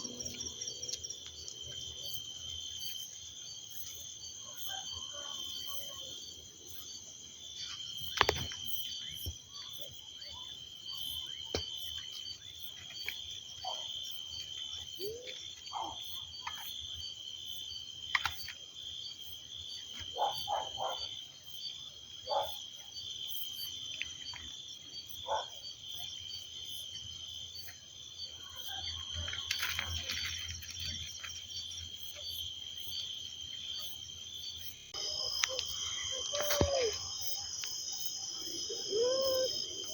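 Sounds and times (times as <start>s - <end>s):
high-pitched pulsing insect trill: 27.5s - 39.9s.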